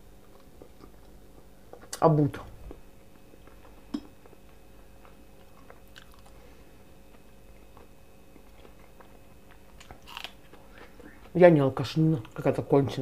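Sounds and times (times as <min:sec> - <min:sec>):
close chewing: 0:03.1 - 0:06.4, 0:07.0 - 0:12.5.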